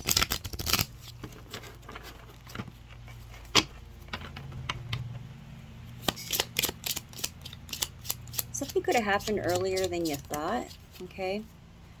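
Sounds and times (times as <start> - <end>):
cards clicking: 6.0 - 11.1.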